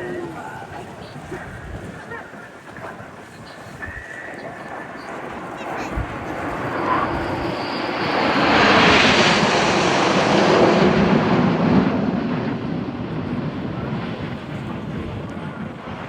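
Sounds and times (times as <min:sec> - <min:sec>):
jet aircraft flying past: 0:04.1 - 0:16.0.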